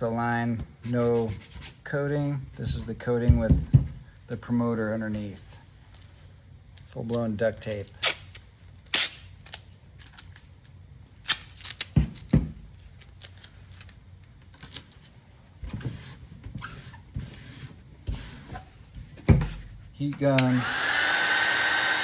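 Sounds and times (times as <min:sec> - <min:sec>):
duct tape crinkling: 0:05.9 - 0:15.1.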